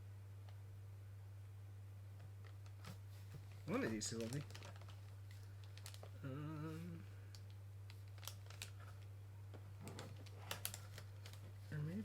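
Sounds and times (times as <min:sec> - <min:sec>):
low electrical hum: 0:00.0 - 0:12.0
person humming: 0:06.2 - 0:07.2.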